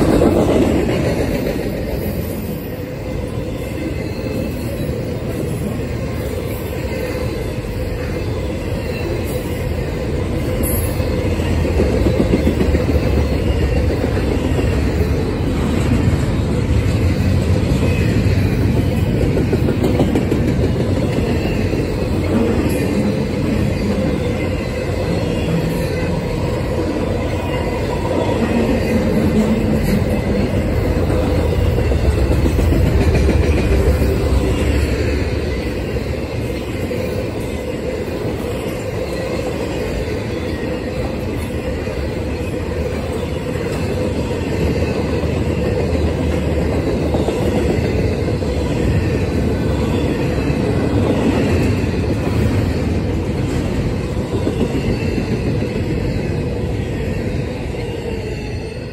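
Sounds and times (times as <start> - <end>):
freight train rumbling past: 0.0 - 58.9
wheels clacking over rail joints: 10.8 - 37.0.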